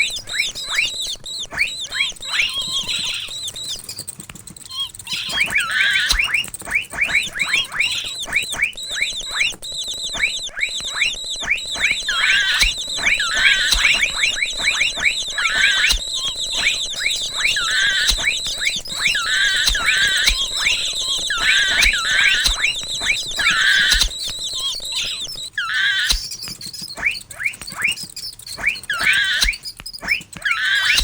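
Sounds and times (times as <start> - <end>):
warbling squeals: 0.0 - 26.3, 26.9 - 31.0
mouse squeaking: 0.0 - 31.0.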